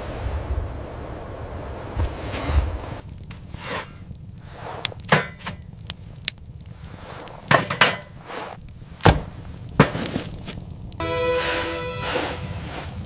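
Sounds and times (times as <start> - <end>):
steady pitched tone: 11.0 - 12.8.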